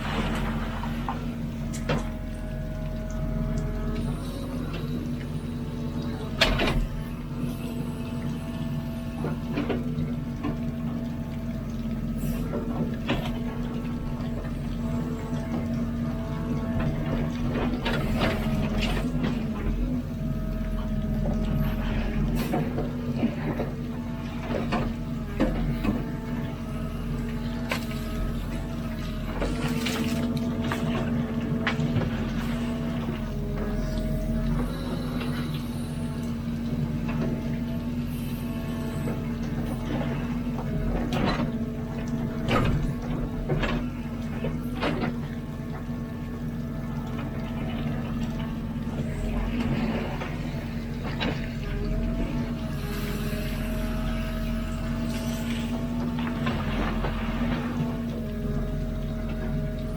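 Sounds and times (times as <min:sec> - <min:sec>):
diesel engine running: 0:00.0 - 0:59.9
hydraulic whine: 0:00.0 - 0:59.9.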